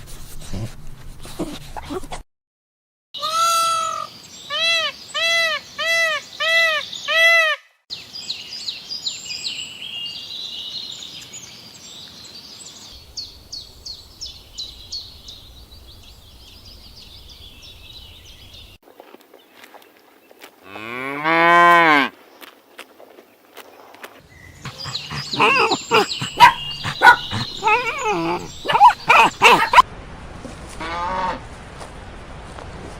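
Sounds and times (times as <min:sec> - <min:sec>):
small birds chirping: 0:07.9 - 0:20.5, 0:22.2 - 0:29.8
cow mooing: 0:20.7 - 0:22.1.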